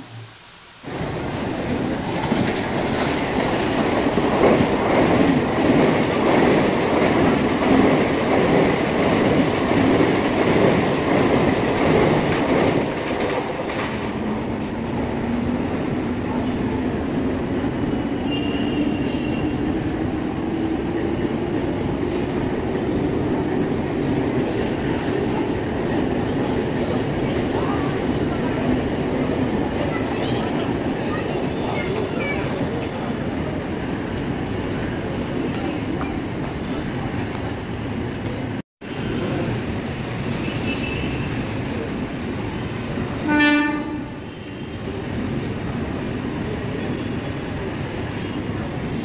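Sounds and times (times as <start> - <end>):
rising whine: 0.0 - 2.1
train wheels rumbling and clattering: 2.1 - 44.1.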